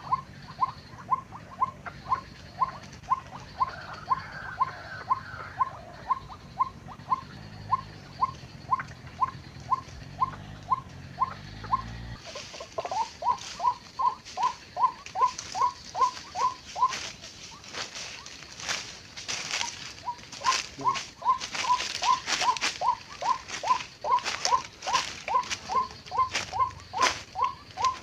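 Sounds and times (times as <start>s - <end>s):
waterhen calling: 0.0s - 28.0s
crackling rustle: 2.2s - 4.1s, 11.9s - 28.0s.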